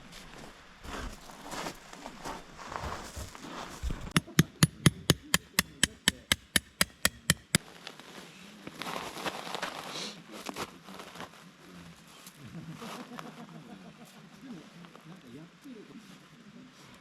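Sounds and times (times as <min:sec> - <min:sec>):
rapid hammer blows: 0:03.8 - 0:07.6.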